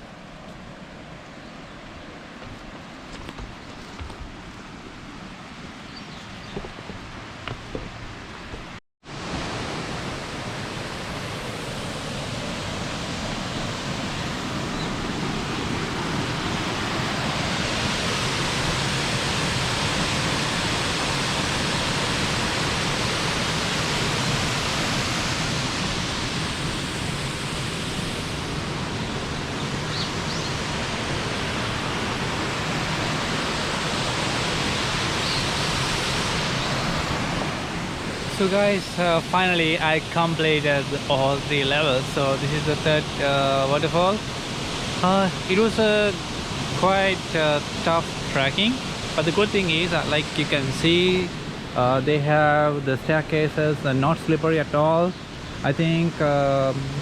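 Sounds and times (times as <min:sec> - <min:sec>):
waterfall rushing: 0:08.4 - 0:52.4.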